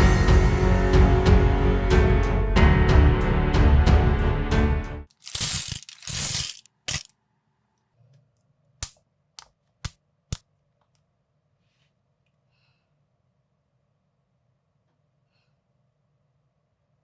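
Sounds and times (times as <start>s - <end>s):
plastic bricks rattling: 5.1s - 7.1s.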